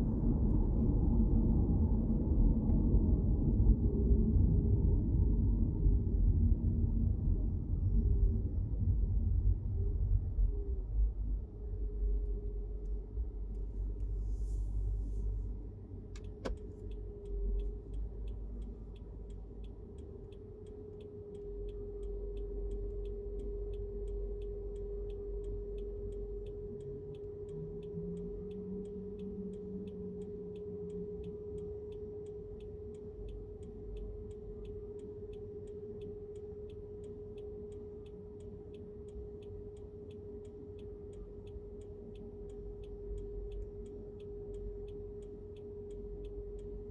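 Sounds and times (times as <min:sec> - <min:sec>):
road and engine rumble: 0:00.0 - 0:46.9
sharp click: 0:16.2 - 0:17.0.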